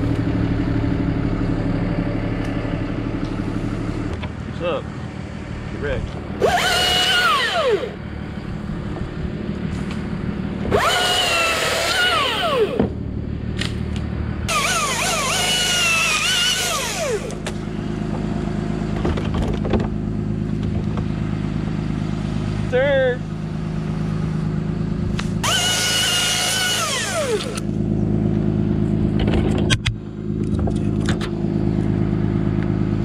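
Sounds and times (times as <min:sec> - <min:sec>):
engine drone: 0:00.0 - 0:33.0
chainsaw cutting: 0:06.4 - 0:08.0, 0:10.7 - 0:12.8, 0:14.5 - 0:17.6, 0:25.4 - 0:27.7.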